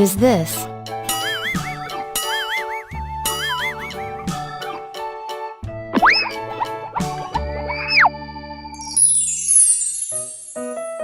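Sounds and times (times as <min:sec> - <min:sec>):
children's keyboard music: 0:00.0 - 0:05.4.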